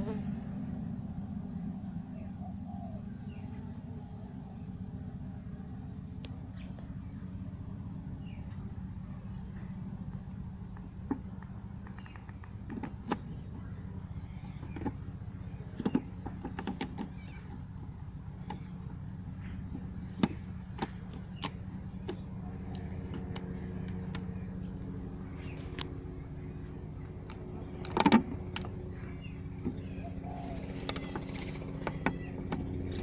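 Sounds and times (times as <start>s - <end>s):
clicks and crackles from hive: 10.1s - 33.0s.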